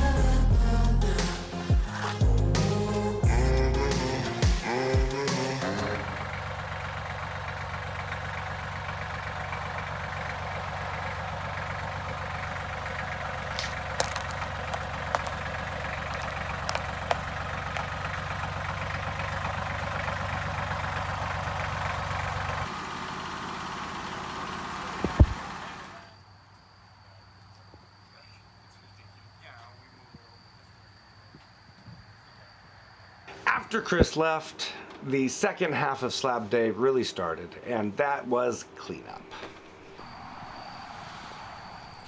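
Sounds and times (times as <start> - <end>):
engine idling: 0.0 - 26.2.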